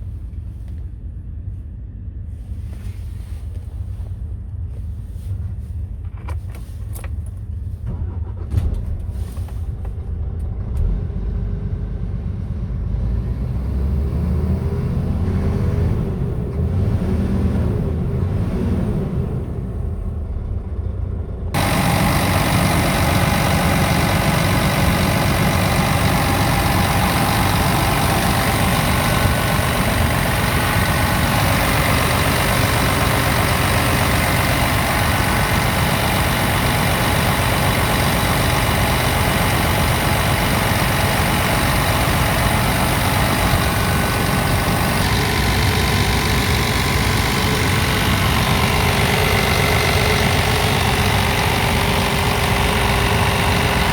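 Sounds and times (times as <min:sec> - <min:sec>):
diesel engine idling: 0:13.0 - 0:53.9.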